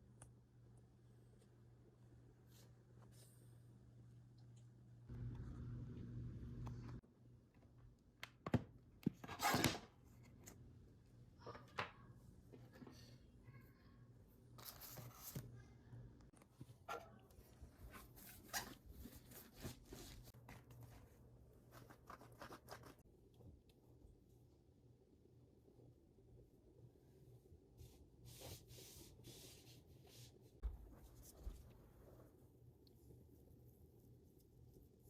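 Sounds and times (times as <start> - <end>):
low hum: 4.0 - 7.0.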